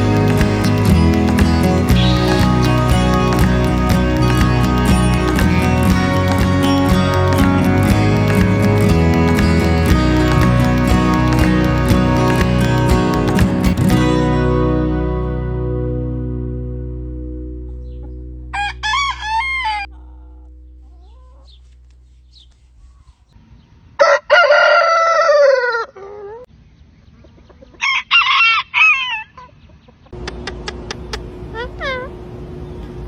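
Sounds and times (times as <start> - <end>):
guitar chord: 0.0 - 18.8
rooster crowing: 18.6 - 20.3, 24.0 - 26.2, 27.8 - 29.4.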